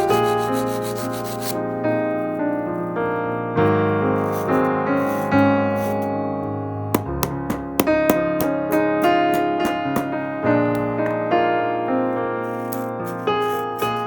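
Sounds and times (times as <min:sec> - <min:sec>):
rapid rubbing strokes: 0:00.0 - 0:01.6, 0:04.2 - 0:06.0
piano music: 0:00.0 - 0:14.0.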